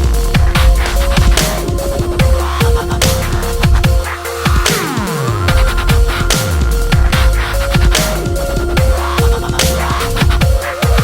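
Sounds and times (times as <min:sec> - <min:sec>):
deep kick drums: 0:00.0 - 0:11.0
repeating synth notes: 0:00.0 - 0:11.0.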